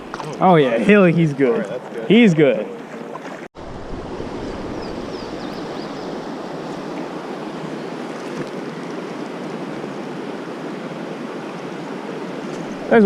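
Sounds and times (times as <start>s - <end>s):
river water rushing: 2.8s - 13.0s.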